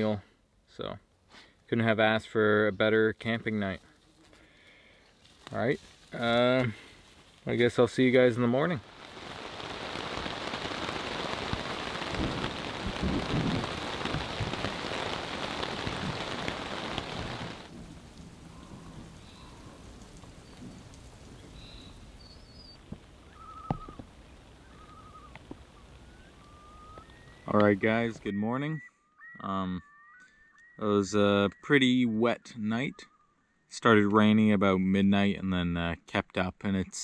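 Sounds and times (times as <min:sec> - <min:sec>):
rain pattering on a lake: 0:05.5 - 0:28.1
heavy rain drumming on a tent: 0:08.0 - 0:24.5
short high calls: 0:21.8 - 0:27.5.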